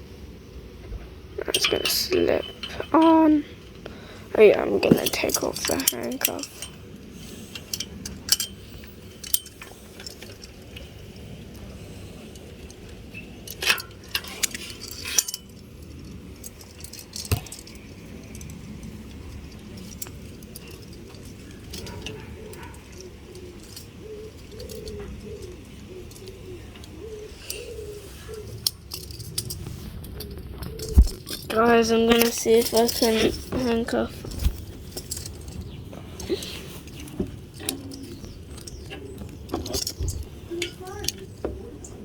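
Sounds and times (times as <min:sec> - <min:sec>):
metallic clinks and jangles: 0:01.4 - 0:03.4, 0:04.6 - 0:10.8, 0:13.5 - 0:25.5, 0:32.1 - 0:41.4
bird cooing: 0:20.6 - 0:28.8, 0:30.1 - 0:31.2, 0:35.6 - 0:42.0.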